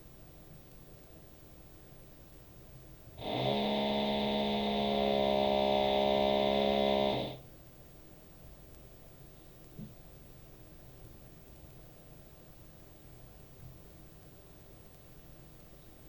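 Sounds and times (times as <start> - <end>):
drilling through ceiling: 3.2 - 7.4.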